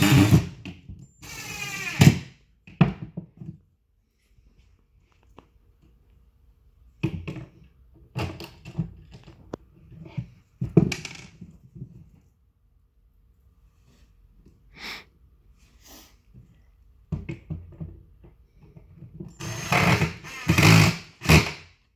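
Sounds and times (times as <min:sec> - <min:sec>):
cabinet parts knocking and clattering: 0:10.6 - 0:11.9.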